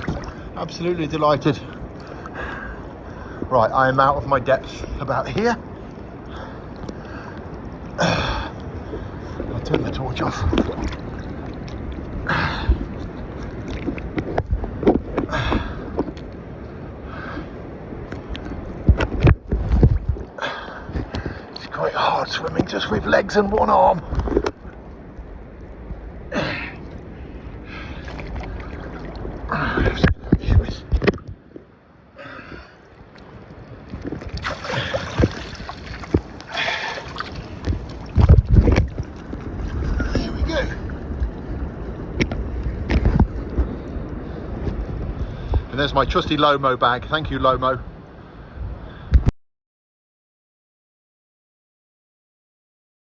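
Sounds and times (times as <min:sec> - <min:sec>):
water splashing around swimmer: 0:00.0 - 0:00.5, 0:34.2 - 0:39.9
loud breaths: 0:34.4 - 0:37.6.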